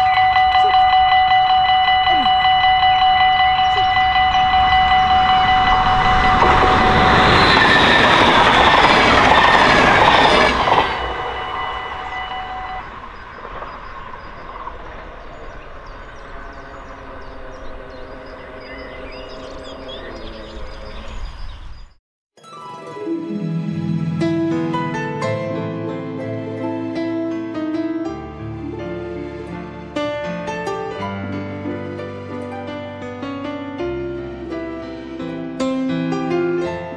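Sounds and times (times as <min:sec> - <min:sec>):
level crossing warning bells: 0:00.0 - 0:21.3
train rushing past: 0:00.0 - 0:21.9.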